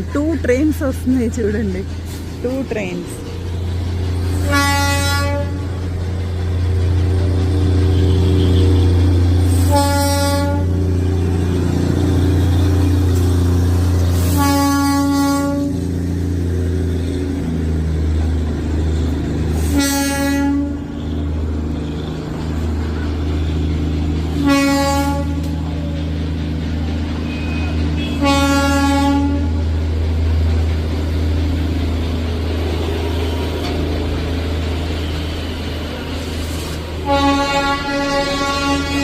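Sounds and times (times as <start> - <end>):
locomotive low rumble: 0.0 - 39.0
train horn blasts: 4.3 - 5.7, 7.7 - 15.9, 19.5 - 22.2, 24.3 - 25.7, 27.3 - 29.7, 37.0 - 39.0.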